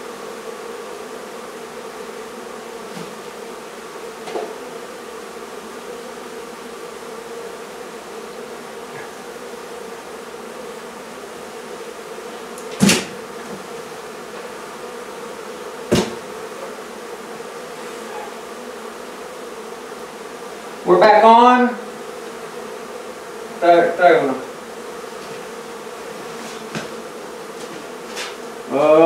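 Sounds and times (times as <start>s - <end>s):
bees buzzing: 0.0s - 29.0s
sharp knocks: 12.6s - 13.7s, 15.9s - 16.3s.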